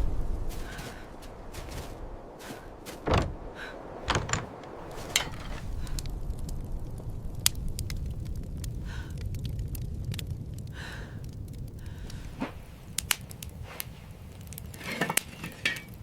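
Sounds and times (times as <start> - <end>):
knocks and thuds: 3.0 - 5.7
low rumble: 3.1 - 13.0.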